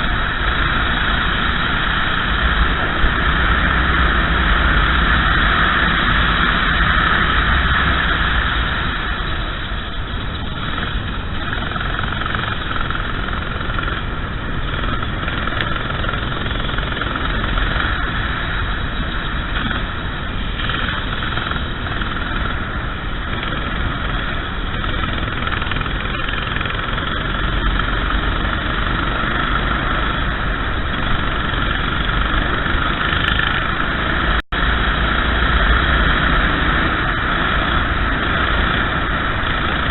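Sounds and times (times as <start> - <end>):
racing kart engine: 0.0 - 39.9.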